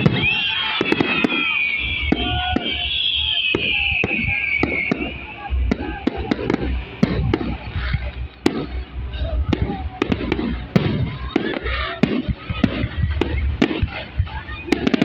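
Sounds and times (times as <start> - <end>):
crowd voices: 0.0 - 15.0
fireworks cracking and booming: 0.0 - 15.0.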